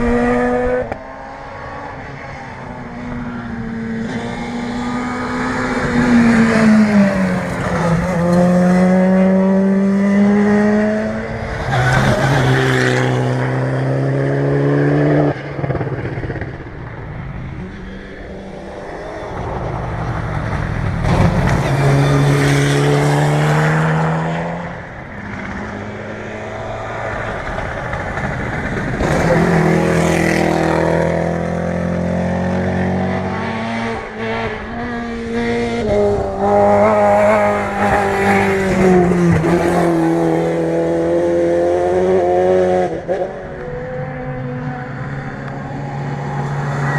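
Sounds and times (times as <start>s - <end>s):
rally car engine accelerating: 3.1s - 16.8s.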